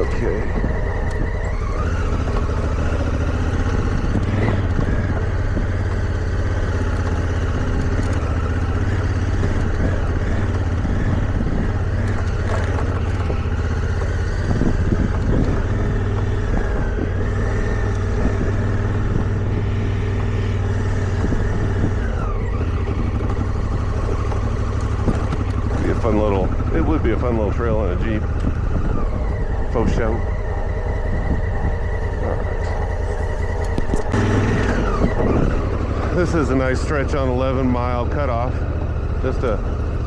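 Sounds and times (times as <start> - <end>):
motorcycle engine running: 0.0 - 40.0
bike knocking over bumps: 1.8 - 26.3.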